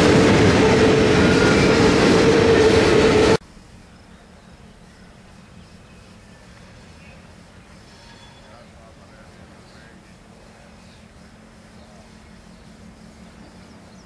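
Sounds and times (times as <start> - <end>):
freight train wheels rumbling: 0.0 - 14.0
faint outdoor background: 3.4 - 14.0.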